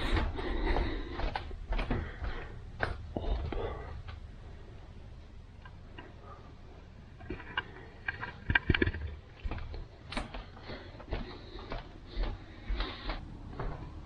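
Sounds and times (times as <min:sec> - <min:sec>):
footsteps on a floor: 0:00.0 - 0:04.2, 0:09.3 - 0:14.0.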